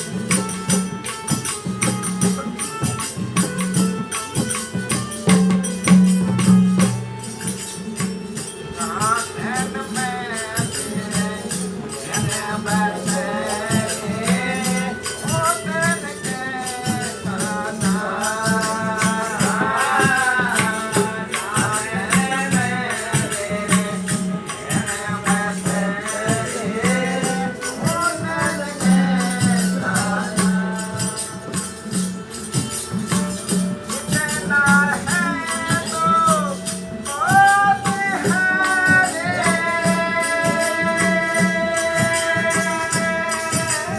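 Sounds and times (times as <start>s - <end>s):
jingling hand percussion: 0.0s - 43.9s
person singing: 33.9s - 43.9s.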